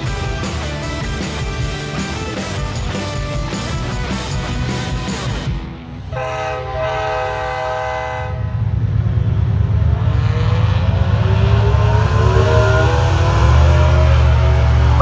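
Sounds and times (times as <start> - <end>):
engine rumbling rising in pitch: 5.8 - 15.0
loud horn-like chord: 6.0 - 8.6
deep rumble: 8.3 - 15.0.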